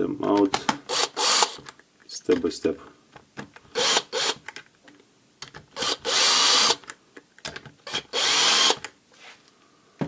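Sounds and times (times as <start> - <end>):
cordless drill running: 0.9 - 1.6, 3.7 - 4.4, 5.8 - 6.8, 7.9 - 8.8.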